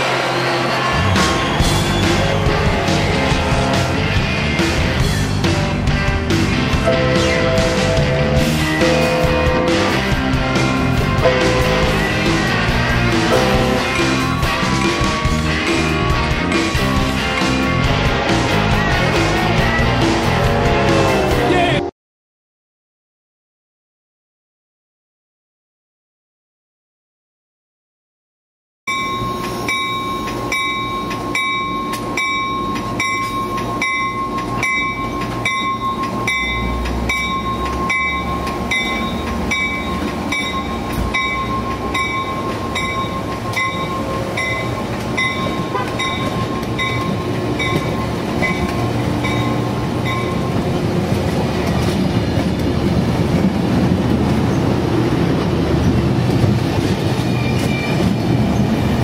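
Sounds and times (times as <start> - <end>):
train wheels clacking and rumbling: 0.0 - 21.4, 28.9 - 59.0
bell ringing: 6.9 - 10.1, 13.3 - 15.2, 28.9 - 50.9.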